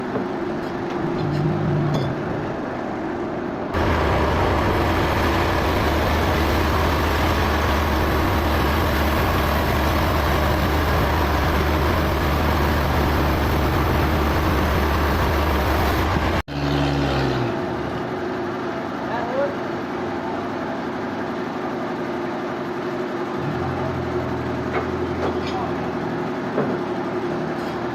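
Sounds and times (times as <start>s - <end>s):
sawmill machinery droning: 2.5s - 19.0s.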